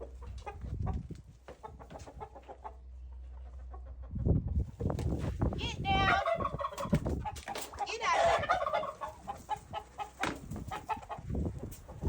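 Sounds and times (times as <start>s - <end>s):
poultry calling: 7.8s - 11.2s
rattling gobble-like call: 8.0s - 11.1s.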